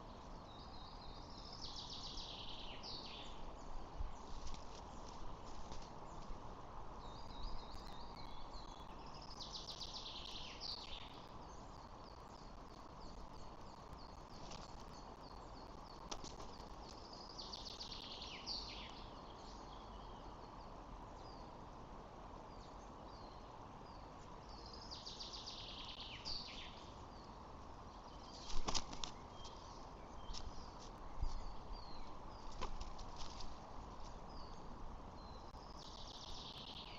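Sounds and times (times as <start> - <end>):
steady outdoor hiss: 0.0 - 36.9
thin bird chirps: 23.2 - 36.9.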